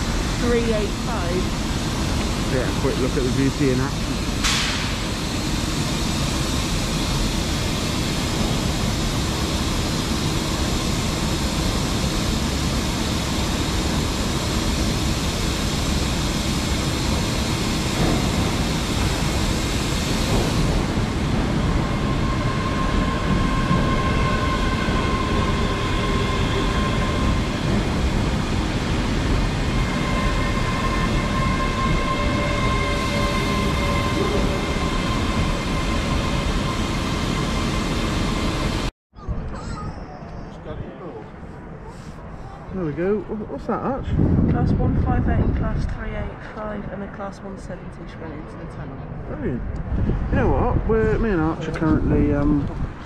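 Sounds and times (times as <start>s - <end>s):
electric train whine: 0.0s - 38.9s
train rumble and hiss: 0.0s - 53.0s.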